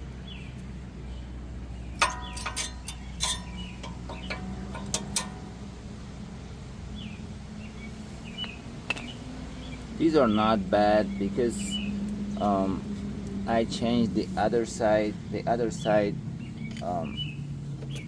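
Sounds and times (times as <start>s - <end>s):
low hum: 0.0s - 8.1s
metallic clinks of tools: 2.0s - 5.6s.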